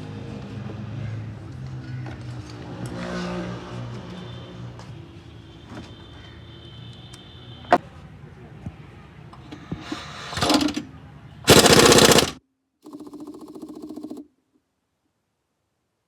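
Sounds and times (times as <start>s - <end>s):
impact wrench hammering: 10.3s - 10.8s, 11.5s - 14.2s.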